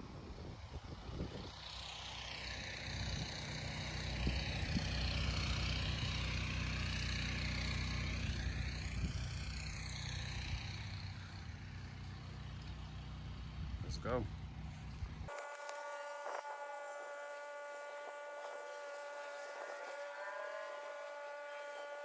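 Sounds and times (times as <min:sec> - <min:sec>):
engine droning: 0:00.0 - 0:22.0
pressure washer spray hissing: 0:15.6 - 0:22.0.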